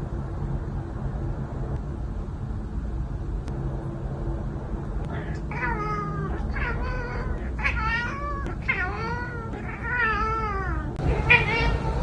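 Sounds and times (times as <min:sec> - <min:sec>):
steady low hum: 0:00.0 - 0:12.0
cat meowing: 0:05.2 - 0:12.0.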